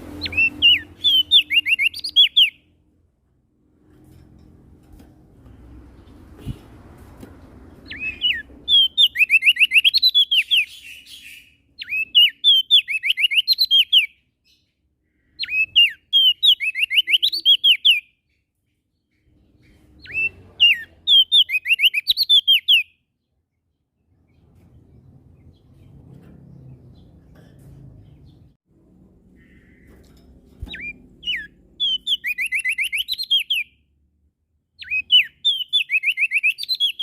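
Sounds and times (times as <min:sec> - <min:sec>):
bird singing high phrases: 0:00.0 - 0:02.8, 0:07.7 - 0:26.0, 0:29.4 - 0:34.0, 0:34.7 - 0:37.0.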